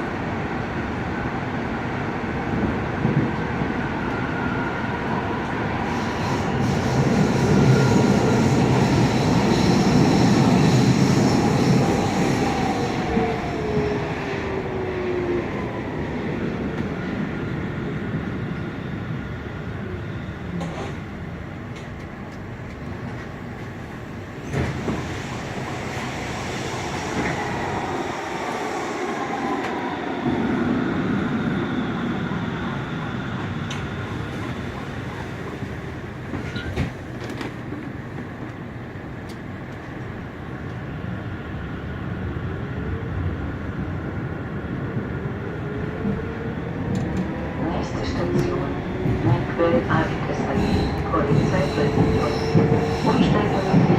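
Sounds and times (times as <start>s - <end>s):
train wheels rumbling on rails: 19.9s - 41.2s, 43.8s - 53.9s.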